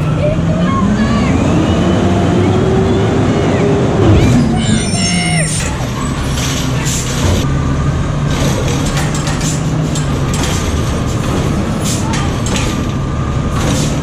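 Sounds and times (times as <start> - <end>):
truck engine running: 3.8 - 14.0.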